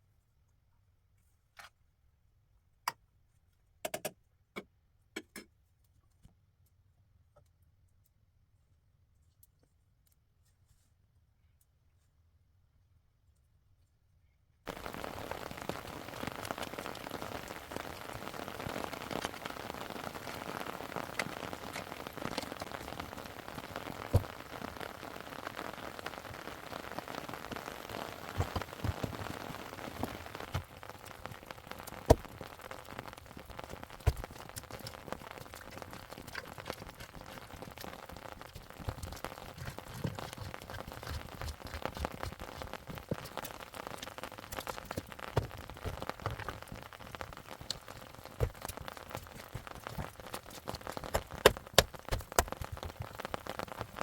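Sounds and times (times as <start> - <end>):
steady rain falling: 14.7 - 54.0
water drips: 14.7 - 54.0.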